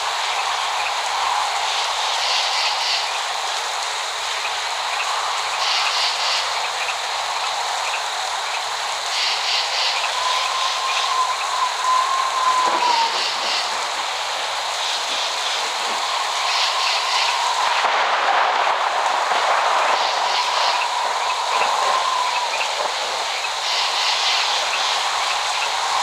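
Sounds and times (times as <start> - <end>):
steady rain hiss: 0.0 - 26.0
thin whistle-like tone: 10.0 - 13.6.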